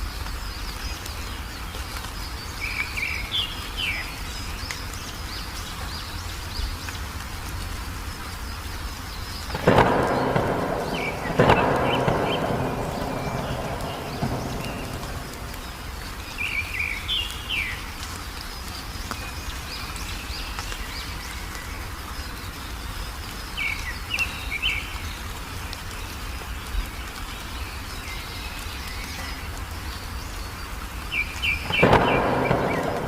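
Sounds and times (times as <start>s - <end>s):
songbird chirping: 0.0s - 33.0s
steady low rumble: 9.5s - 16.5s.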